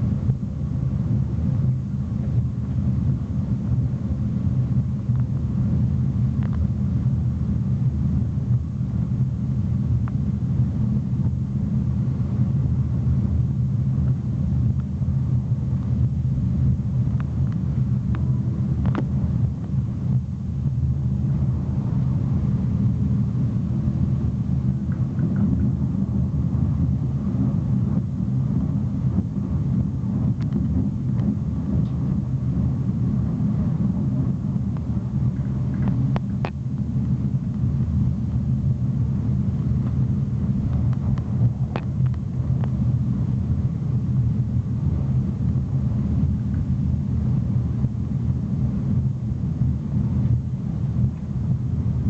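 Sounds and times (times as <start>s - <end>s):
train rumbling on rails: 16.1s - 43.4s.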